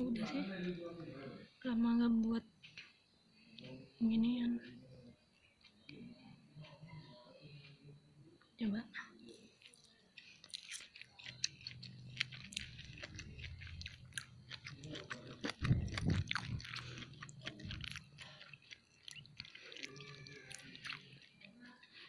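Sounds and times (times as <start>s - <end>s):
person chewing wetly: 9.2s - 22.0s.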